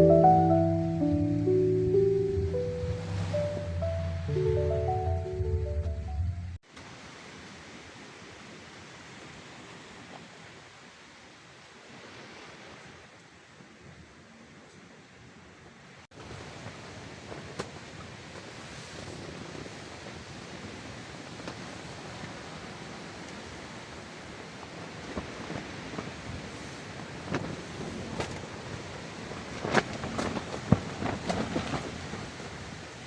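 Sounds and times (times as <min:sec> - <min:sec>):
wind blowing: 0:00.0 - 0:06.6.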